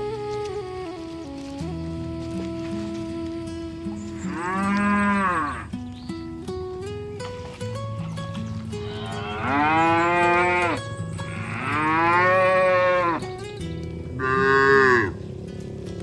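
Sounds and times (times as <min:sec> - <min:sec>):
cattle mooing: 0:04.2 - 0:05.7, 0:08.8 - 0:13.4, 0:14.2 - 0:16.0.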